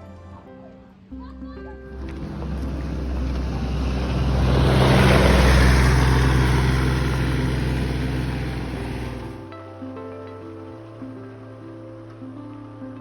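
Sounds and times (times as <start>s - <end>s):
vehicle passing by: 1.8s - 9.5s.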